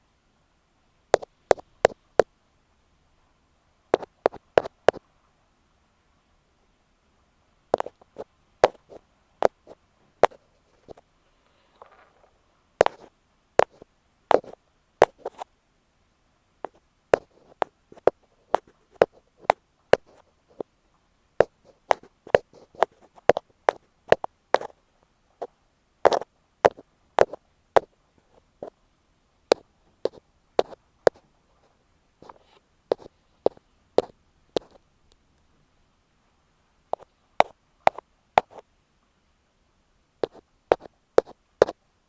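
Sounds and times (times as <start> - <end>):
soft rustle: 1.1 - 2.3, 3.2 - 5.4, 7.1 - 15.6, 16.6 - 28.9, 29.5 - 39.2
tapping on earphone microphone: 1.2 - 2.3, 4.0 - 5.0, 7.8 - 11.0, 12.8 - 15.5, 16.7 - 20.7, 21.4 - 24.8, 26.1 - 28.8, 29.5 - 31.2, 32.2 - 34.8, 36.9 - 38.6, 40.2 - 41.8.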